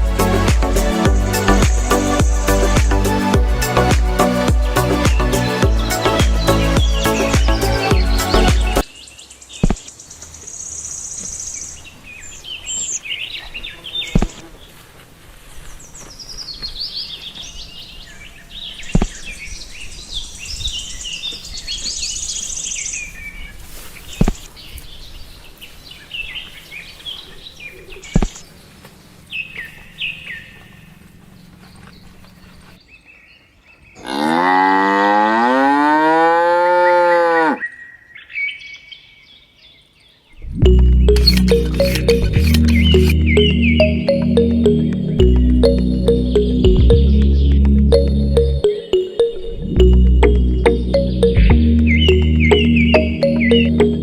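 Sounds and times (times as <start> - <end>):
small birds chirping: 37.7 - 44.2
sharp clicks: 41.1 - 43.2.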